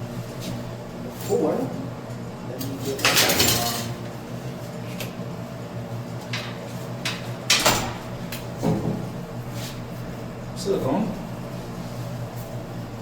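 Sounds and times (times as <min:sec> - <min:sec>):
steady low hum: 0:03.9 - 0:13.0.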